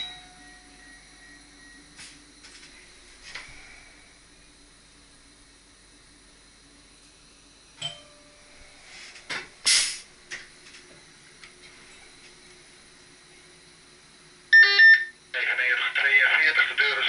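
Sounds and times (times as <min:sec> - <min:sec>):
click with ringing tone: 0:07.8 - 0:08.4
sharp hiss of air: 0:08.8 - 0:10.1.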